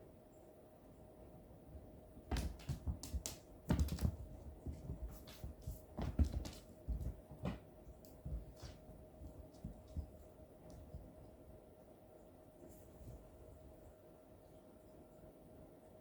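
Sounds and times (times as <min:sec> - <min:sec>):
light taps and knocks on floor: 0:02.3 - 0:11.2.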